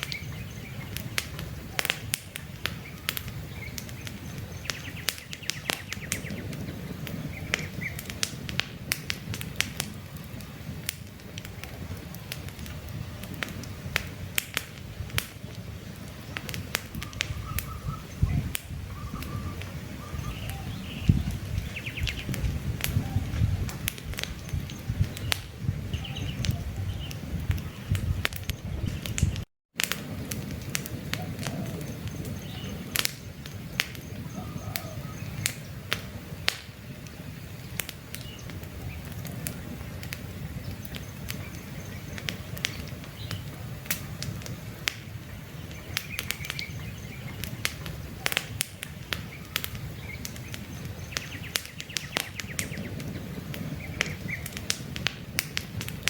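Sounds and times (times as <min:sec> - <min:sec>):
faint birds chirping: 0:00.0 - 0:08.3, 0:15.4 - 0:29.4, 0:31.2 - 0:54.7
campfire crackling and popping: 0:00.0 - 0:56.0.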